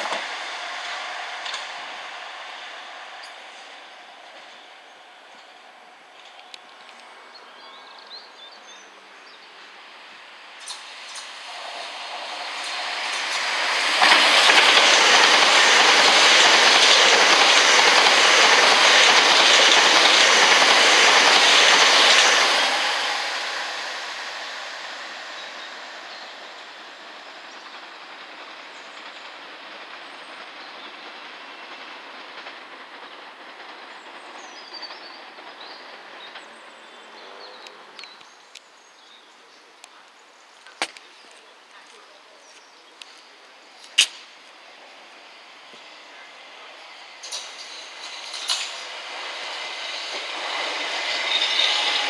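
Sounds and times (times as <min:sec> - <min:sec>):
electric train passing at speed: 0:00.0 - 0:52.0.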